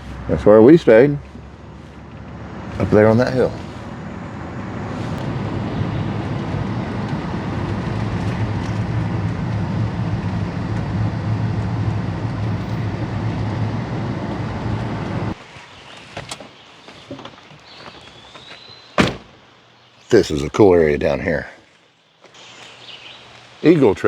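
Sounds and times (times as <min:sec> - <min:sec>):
car road noise rumble: 0:00.0 - 0:15.4.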